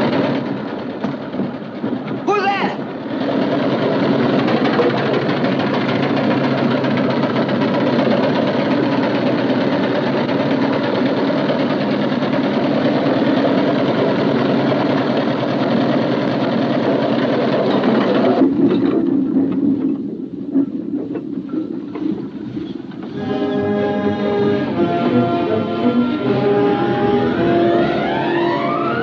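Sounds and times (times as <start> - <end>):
low train rumble: 0.0 - 29.0
train rattling at speed: 0.0 - 29.0.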